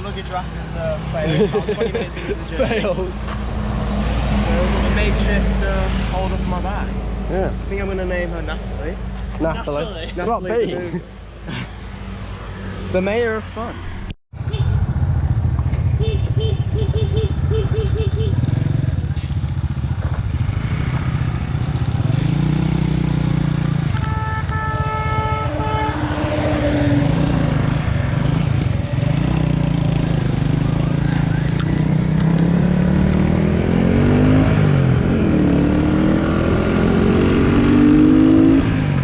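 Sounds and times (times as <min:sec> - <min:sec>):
vehicle horn: 0:14.4 - 0:14.8, 0:15.9 - 0:18.4, 0:23.9 - 0:27.8.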